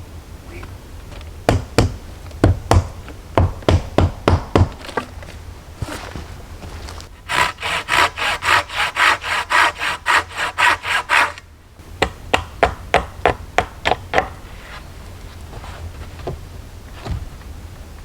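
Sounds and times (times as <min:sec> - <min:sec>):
sharp knocks on wood: 0:01.5 - 0:05.2, 0:12.0 - 0:14.4
hand saw cutting wood: 0:05.8 - 0:11.5.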